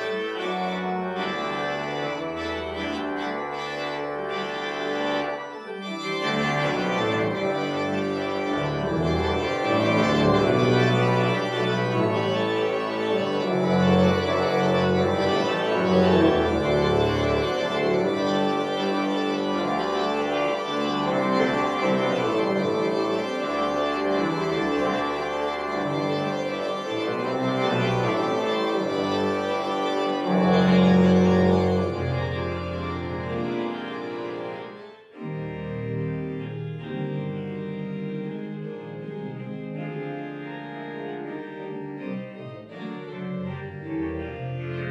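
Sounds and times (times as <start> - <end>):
pipe organ playing chords: 0.0 - 44.9.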